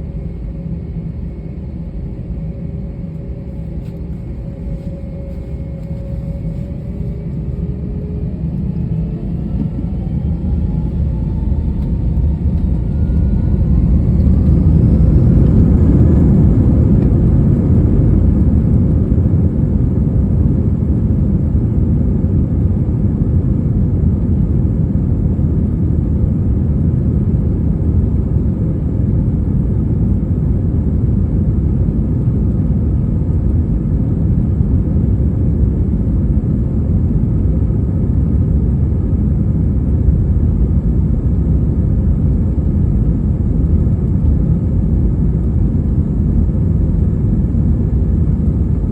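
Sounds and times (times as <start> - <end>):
jet engines spooling up: 0.0 - 19.0.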